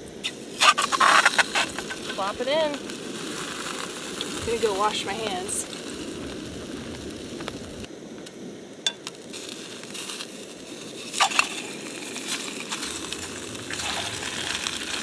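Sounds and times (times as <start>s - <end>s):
sharp pops: 0.0s - 15.0s
fish sizzling in oil: 0.1s - 15.0s.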